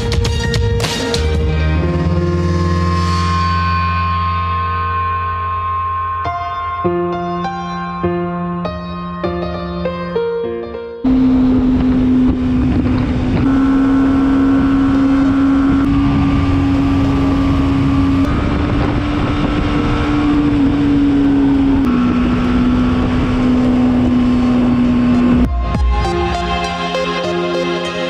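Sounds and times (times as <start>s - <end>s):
motorcycle engine cruising: 11.0s - 25.5s
wind rushing over microphone: 11.1s - 25.5s.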